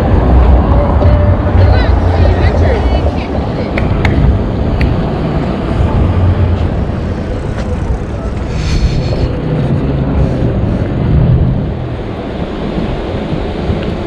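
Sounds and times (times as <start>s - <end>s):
street traffic passing: 0.0s - 14.0s
wind buffeting microphone: 0.0s - 14.0s.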